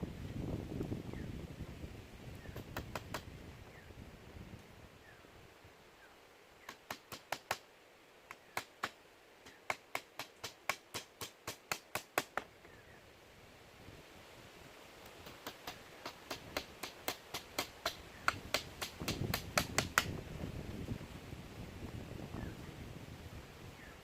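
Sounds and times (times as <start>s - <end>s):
tool striking wood: 8.3s - 12.5s, 15.2s - 20.1s.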